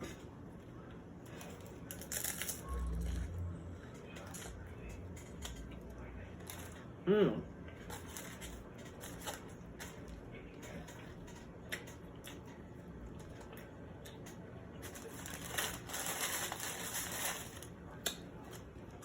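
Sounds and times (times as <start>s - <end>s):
chewing with small crunches: 7.6s - 19.0s.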